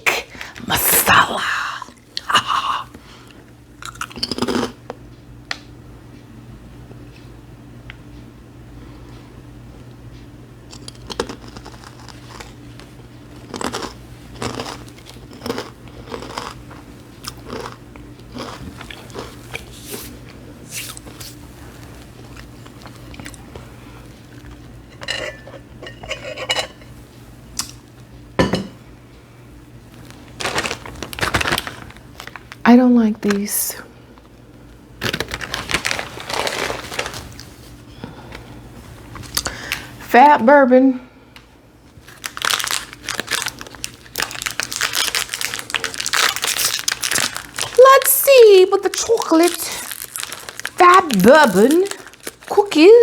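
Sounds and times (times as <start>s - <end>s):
plastic wrapper crinkling: 29.9s - 32.7s, 35.0s - 37.6s, 41.9s - 53.0s
small objects clinking: 48.8s - 52.8s.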